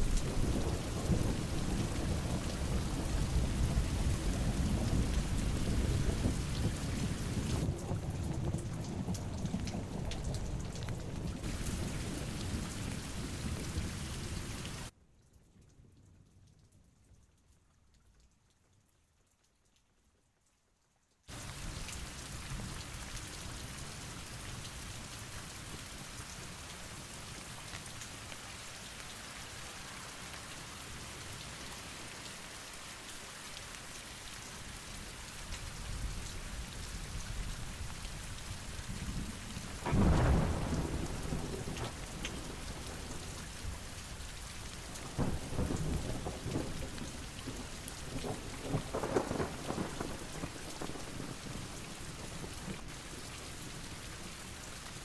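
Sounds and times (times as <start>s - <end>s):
heavy rain pouring: 0.0s - 14.9s, 21.3s - 55.0s
thunder rumbling: 0.0s - 14.9s, 35.8s - 51.6s
thunderclap: 0.0s - 14.9s, 39.0s - 43.9s.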